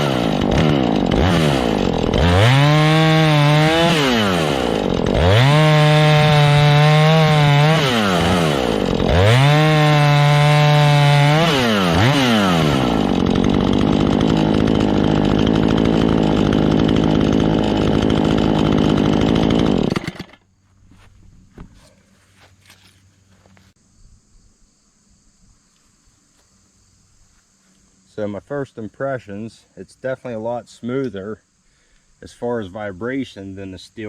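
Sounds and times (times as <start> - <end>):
chainsaw revving and cutting wood: 0.0 - 20.4.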